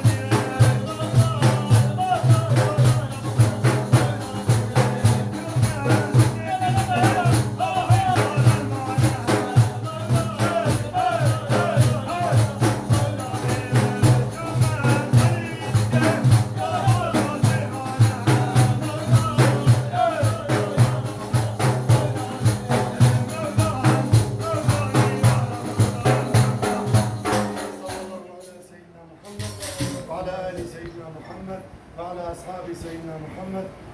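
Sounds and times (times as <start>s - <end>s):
frame drums beating: 0.0s - 28.2s, 29.3s - 30.8s
voices chanting: 0.0s - 28.4s.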